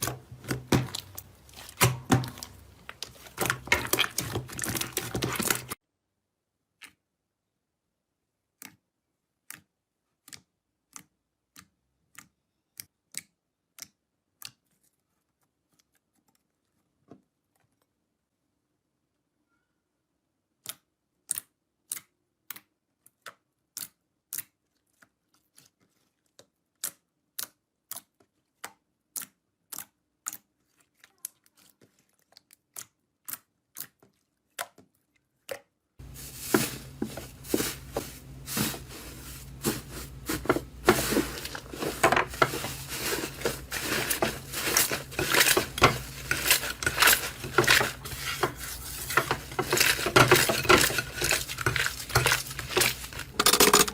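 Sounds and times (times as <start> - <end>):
continuous crackling and crunching: 0.0 - 5.8, 29.2 - 53.9.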